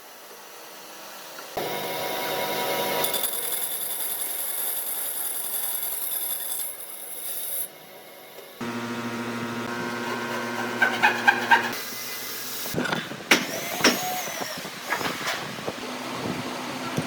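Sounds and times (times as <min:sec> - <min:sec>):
rasping on wood: 0:09.8 - 0:11.8.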